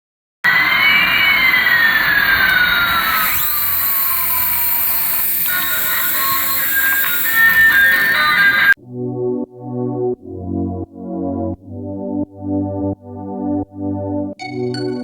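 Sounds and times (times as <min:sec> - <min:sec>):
jet engine whine: 0:00.5 - 0:08.8.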